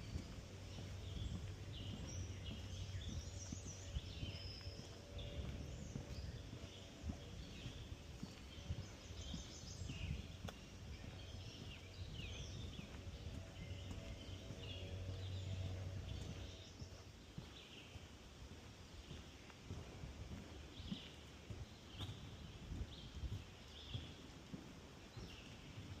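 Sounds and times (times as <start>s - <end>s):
low hum: 0.0s - 18.1s
footsteps on wooden boardwalk: 0.0s - 26.0s
songbirds chirping: 0.0s - 26.0s.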